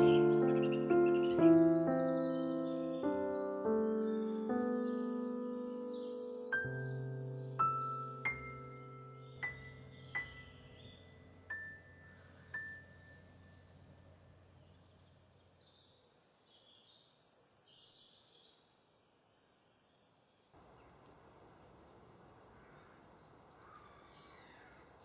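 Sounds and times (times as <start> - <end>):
faint high bird chirps: 0.0 - 18.9, 19.5 - 25.0
low background hiss: 6.6 - 16.2, 18.9 - 25.0.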